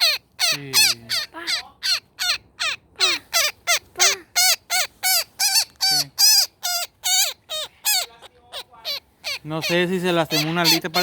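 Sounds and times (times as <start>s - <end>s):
woodpecker distress calls: 0.0s - 11.0s.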